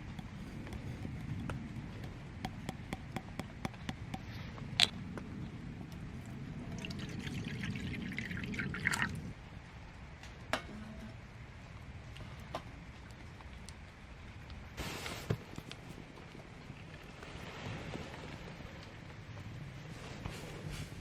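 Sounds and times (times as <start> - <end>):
liquid pouring into glass: 6.7 - 9.3.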